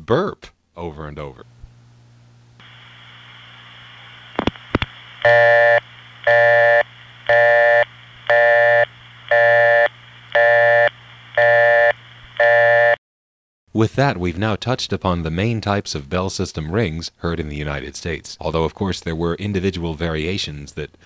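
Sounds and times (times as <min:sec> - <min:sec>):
phone line hiss and hum: 0:02.6 - 0:13.0
phone busy signal: 0:05.2 - 0:13.0.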